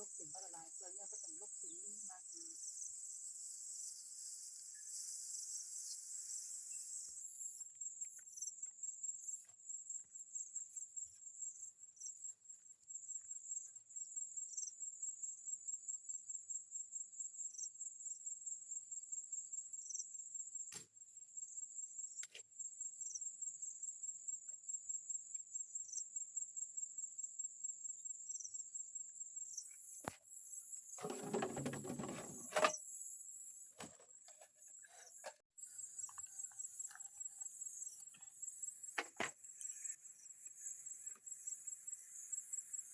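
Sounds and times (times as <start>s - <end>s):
insects chirping: 0.0s - 42.9s.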